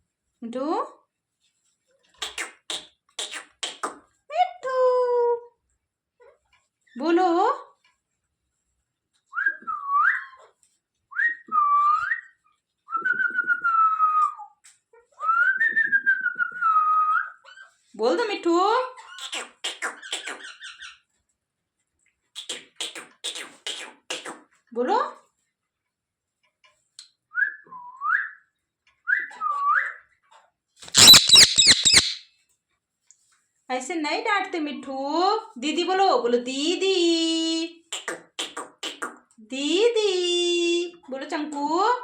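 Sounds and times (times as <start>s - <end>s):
whistled phrases: 9.3s - 10.4s, 11.1s - 14.5s, 15.2s - 17.4s, 27.3s - 30.0s, 30.9s - 32.2s
parrot whistling: 30.9s - 32.2s.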